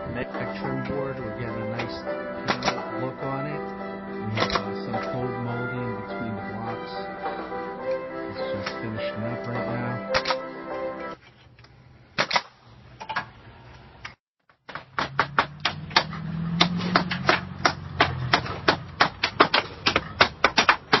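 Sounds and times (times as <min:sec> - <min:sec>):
nails hammered into siding: 0:14.6 - 0:21.0.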